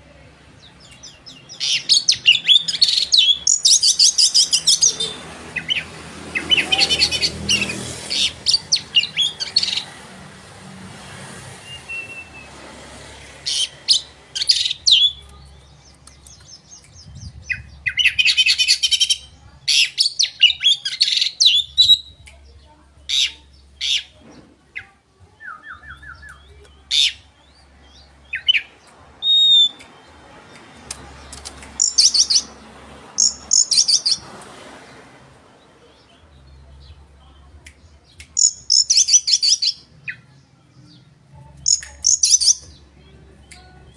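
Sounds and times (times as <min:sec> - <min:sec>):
bird singing chattering trills: 0:31.3 - 0:32.5, 0:41.6 - 0:43.8.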